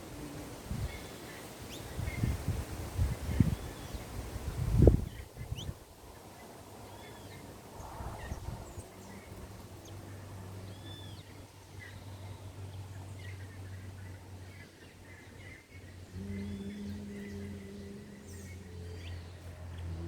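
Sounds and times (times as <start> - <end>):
small birds chirping: 0.0 - 20.0
steady low hum: 7.8 - 20.0.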